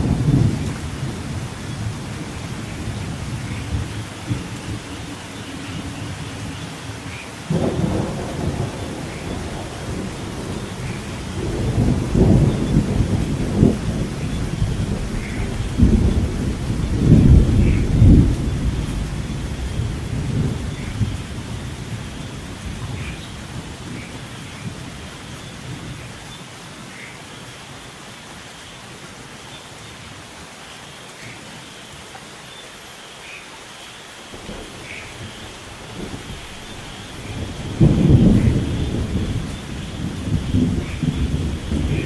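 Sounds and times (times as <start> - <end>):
thunder rolling: 0.0 - 24.8, 34.3 - 42.0
steady rain: 0.0 - 42.0.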